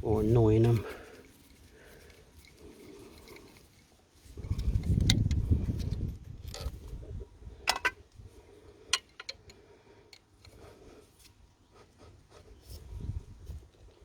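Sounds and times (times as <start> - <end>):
metal clicks and taps of tools: 7.7 - 8.0, 8.9 - 10.6.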